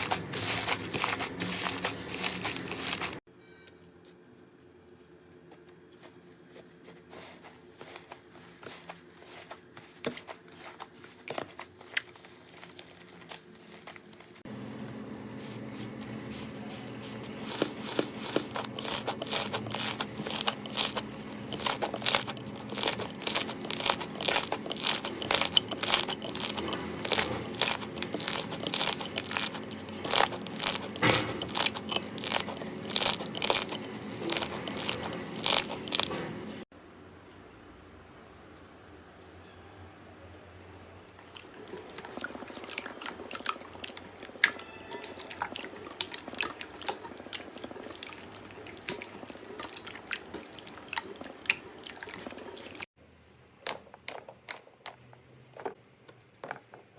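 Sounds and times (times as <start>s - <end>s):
slime crackling and popping: 18.5s - 36.2s.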